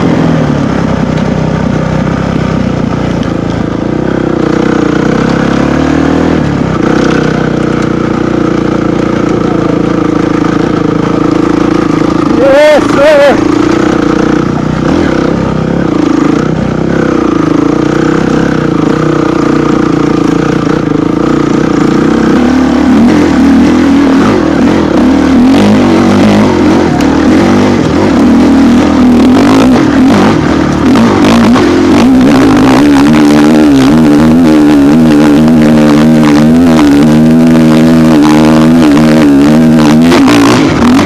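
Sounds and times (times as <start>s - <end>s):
off-road vehicle engine under load: 0.0s - 41.0s.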